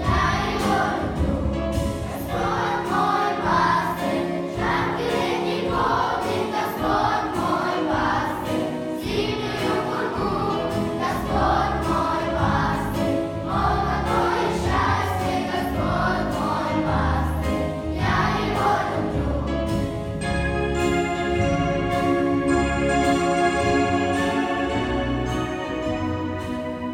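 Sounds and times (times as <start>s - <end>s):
group singing children's song: 0.0s - 20.2s
instrumental accompaniment with bass: 0.0s - 26.9s.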